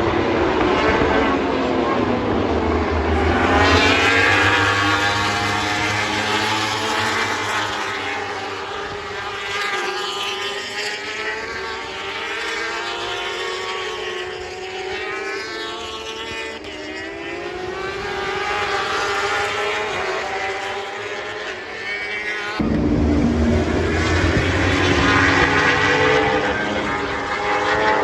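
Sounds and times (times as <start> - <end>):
motorbike engines passing by: 0.1 - 9.4.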